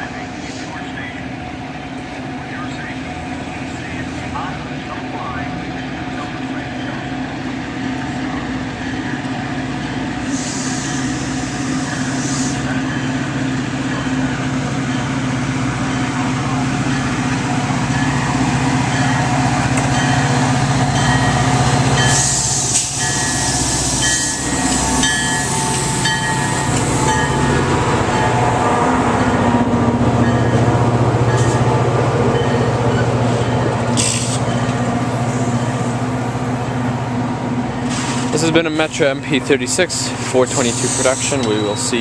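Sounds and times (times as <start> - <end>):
locomotive engine running: 0.0 - 42.0
train hissing: 0.1 - 1.1, 9.7 - 14.4, 16.4 - 28.8, 32.3 - 36.8, 37.7 - 42.0.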